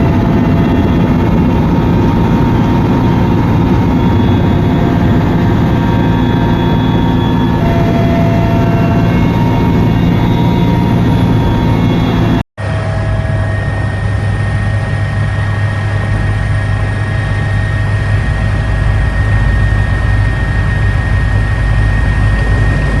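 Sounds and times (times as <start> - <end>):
loud engine drone with high whine: 0.0 - 23.0.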